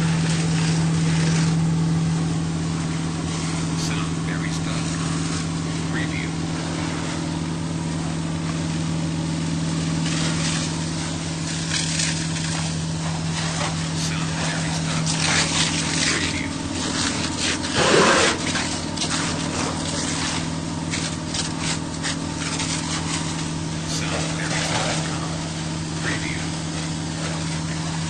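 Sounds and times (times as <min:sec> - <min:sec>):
fire engine humming: 0:00.0 - 0:28.0
water hissing from hose: 0:08.0 - 0:28.0.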